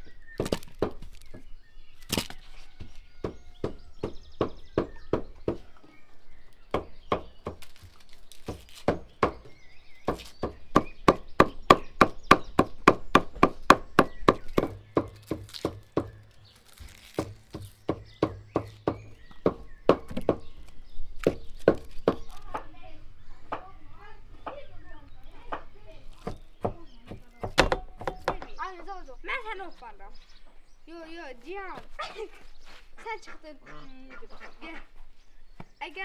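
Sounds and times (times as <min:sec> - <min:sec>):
cleaver chopping meat on wood: 0:03.1 - 0:05.7, 0:06.7 - 0:16.2, 0:17.2 - 0:20.6, 0:25.5 - 0:28.5.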